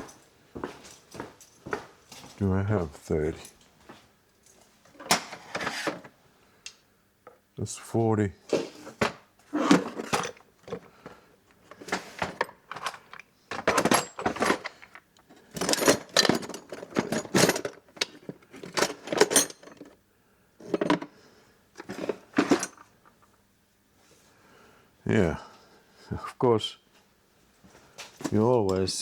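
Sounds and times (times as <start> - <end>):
metal screwdriver bits clinking: 12.4 - 20.0.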